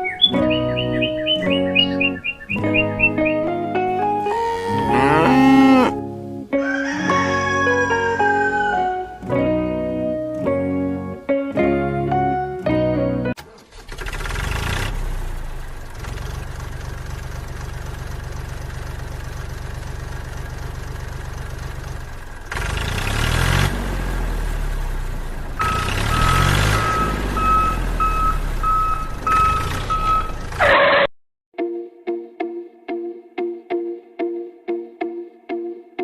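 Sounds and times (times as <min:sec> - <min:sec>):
diesel engine running and revving: 0:13.6 - 0:30.9
high reversing beep: 0:25.6 - 0:31.1.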